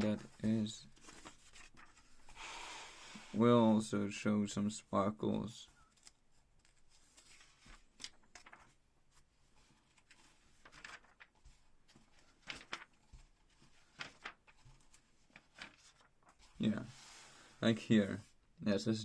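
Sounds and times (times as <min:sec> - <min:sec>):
paper pages rustling: 0:00.0 - 0:02.4, 0:05.7 - 0:17.4.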